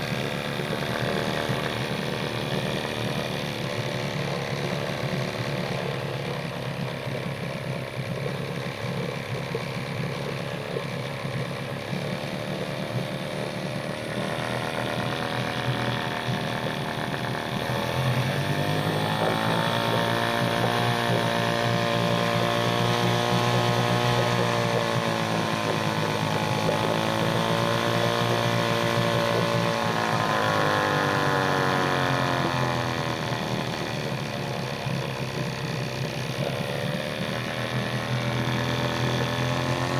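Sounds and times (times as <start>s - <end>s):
outboard motor idling and revving: 0.0s - 39.9s.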